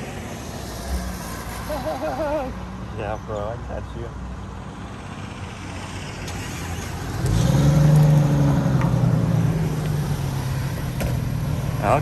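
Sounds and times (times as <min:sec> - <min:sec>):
car engine passing by: 0:05.0 - 0:12.0.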